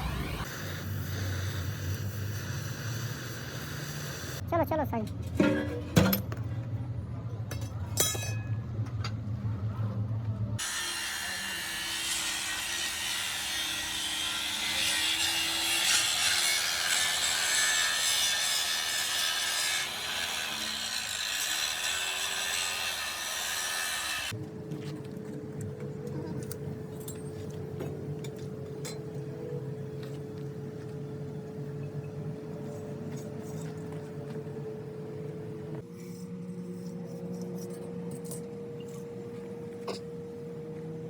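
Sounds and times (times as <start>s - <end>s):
power tool cutting: 10.6s - 24.4s.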